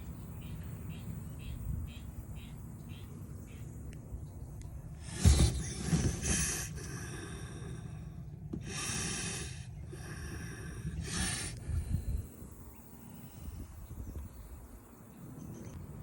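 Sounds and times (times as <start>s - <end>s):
duck hissing: 5.0s - 8.0s, 8.6s - 12.0s.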